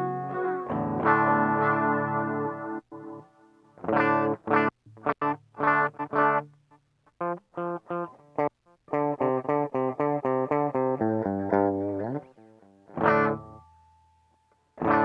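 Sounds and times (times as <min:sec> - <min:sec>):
electric guitar with delay: 0:00.0 - 0:02.8.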